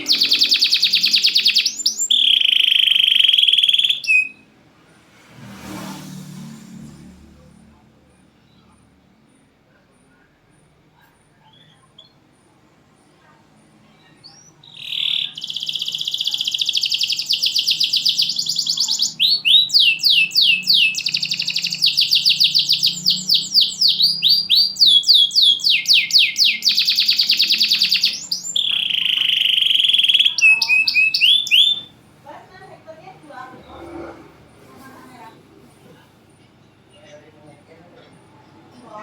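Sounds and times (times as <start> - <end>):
canary singing: 0.0 - 4.5, 13.2 - 37.3.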